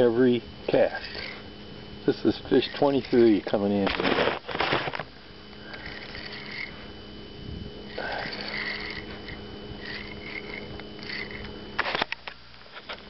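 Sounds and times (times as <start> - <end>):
low hum: 0.0 - 13.0
fishing reel cranking: 0.7 - 1.4, 2.5 - 3.6, 5.6 - 6.7, 7.9 - 12.0.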